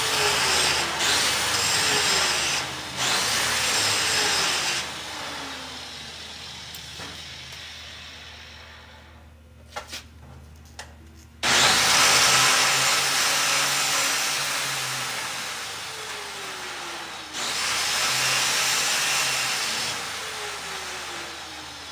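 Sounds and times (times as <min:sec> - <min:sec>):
angle grinder running: 0:00.0 - 0:06.7, 0:11.4 - 0:21.9.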